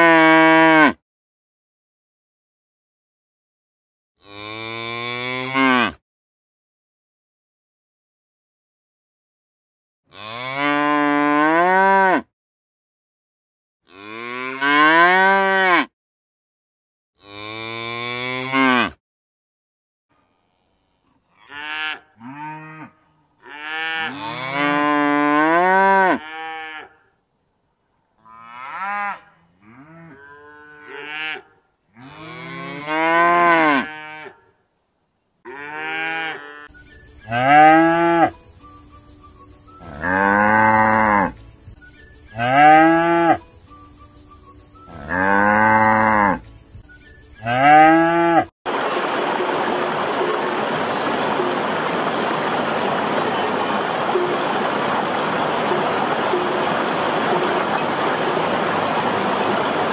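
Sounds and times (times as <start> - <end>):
cattle mooing: 4.2 - 6.0, 28.3 - 34.4, 35.5 - 36.7, 45.0 - 46.4
water rushing over rocks: 48.7 - 59.9.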